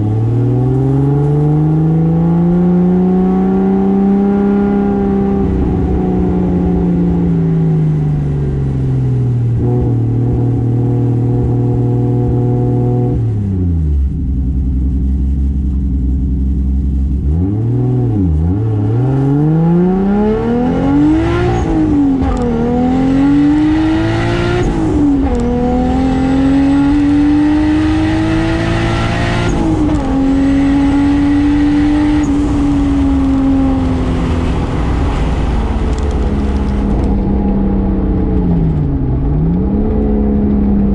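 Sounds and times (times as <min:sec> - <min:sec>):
car engine revving through gears: 0:00.0 - 0:07.3, 0:17.2 - 0:40.9.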